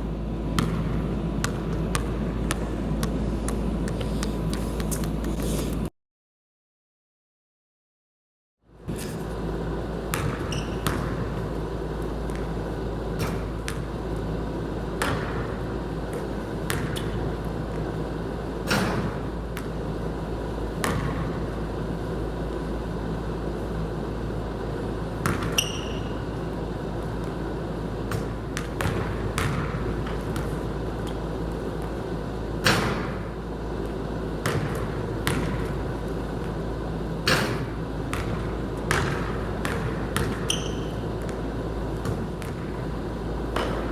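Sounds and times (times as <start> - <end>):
steady low hum: 0.0 - 5.9, 8.6 - 43.9
basketball bouncing: 0.4 - 5.3, 10.0 - 11.6, 12.2 - 12.6, 13.2 - 14.1, 15.0 - 17.9, 18.7 - 19.8, 20.7 - 21.8, 25.2 - 26.3, 28.1 - 32.0, 32.6 - 36.6, 37.2 - 43.9.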